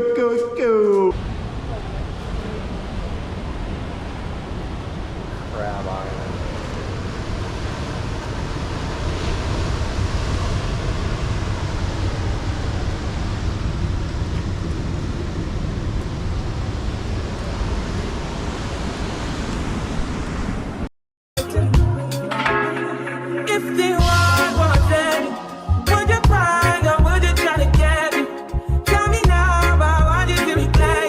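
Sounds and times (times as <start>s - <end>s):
ocean surf on beach: 0.8s - 20.9s.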